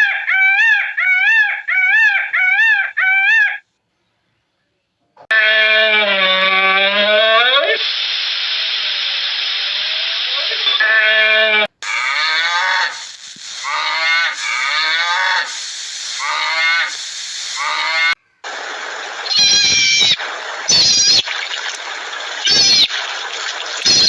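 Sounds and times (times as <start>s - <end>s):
short high-pitched animal calls: 10.6s - 18.2s, 19.2s - 21.4s, 22.4s - 23.0s, 23.8s - 24.0s
animal calls dipping and rising: 13.6s - 24.0s
steady noisy background: 18.4s - 23.7s.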